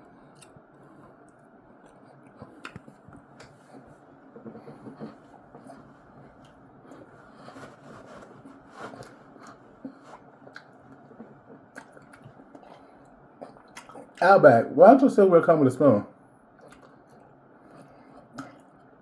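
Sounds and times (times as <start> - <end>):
person chewing: 0.0 - 7.8, 8.5 - 14.2, 16.6 - 19.0.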